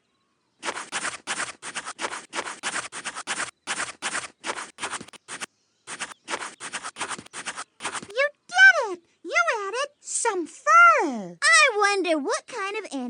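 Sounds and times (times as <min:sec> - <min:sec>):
rapid scratching strokes: 0:00.6 - 0:08.2.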